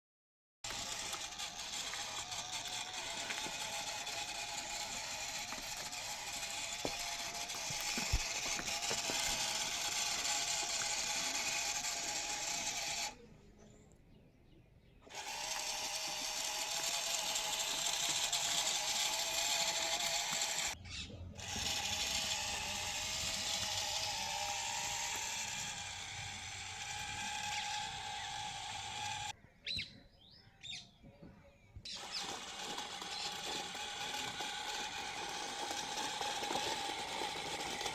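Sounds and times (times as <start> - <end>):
small motor and gears whirring: 0.6 - 13.4, 15.0 - 29.4, 31.8 - 37.9.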